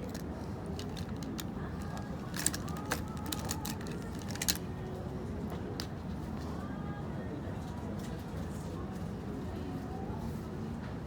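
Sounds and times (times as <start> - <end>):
customers chattering: 0.0 - 6.0.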